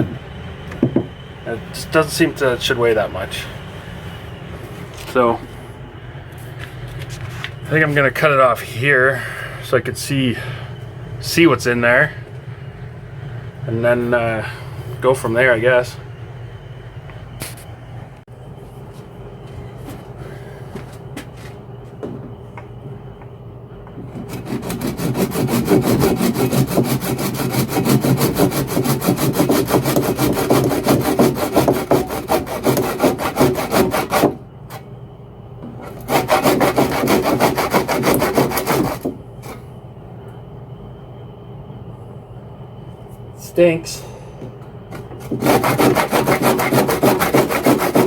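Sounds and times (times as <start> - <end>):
saw cutting drain pipe: 24.1 - 34.8, 35.8 - 39.6, 45.2 - 48.0.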